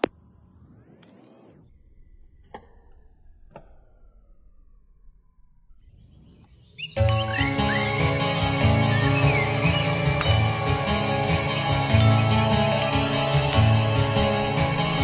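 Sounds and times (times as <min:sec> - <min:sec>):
loud music: 0:07.0 - 0:15.0.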